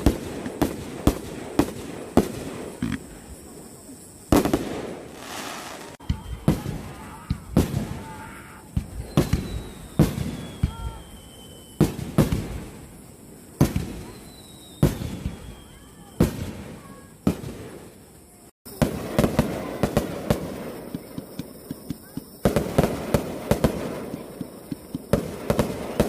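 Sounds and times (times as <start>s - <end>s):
crackling firework pops: 0.0s - 3.3s, 4.3s - 26.0s
firework booms with echo: 0.0s - 18.0s, 18.7s - 26.0s
falling firework whistle: 4.3s - 17.9s.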